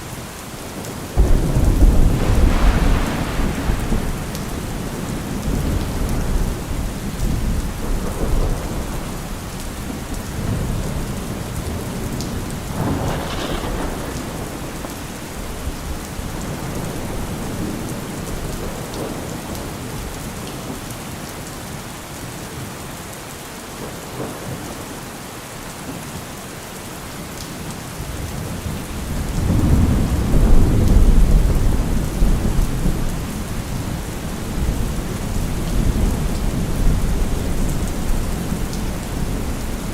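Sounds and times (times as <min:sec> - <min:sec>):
steady rain falling: 0:00.0 - 0:39.9
thunder rumbling: 0:01.2 - 0:19.7, 0:28.6 - 0:39.9.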